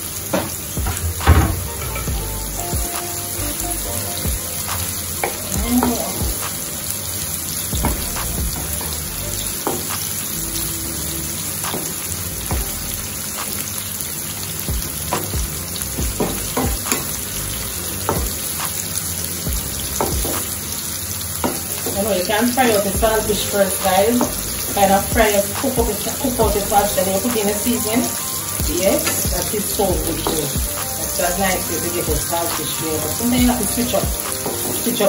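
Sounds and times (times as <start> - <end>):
vegetables sizzling in oil: 0.0 - 35.0.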